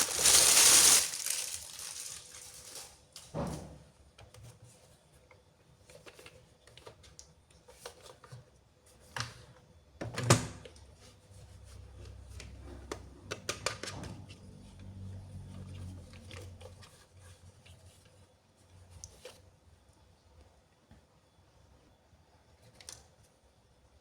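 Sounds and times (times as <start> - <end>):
toys and packaging clicking: 0.0 - 3.3.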